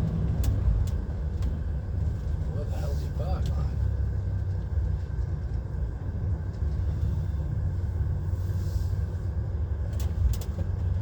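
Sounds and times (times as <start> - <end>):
diesel truck engine rumble: 0.0 - 11.0.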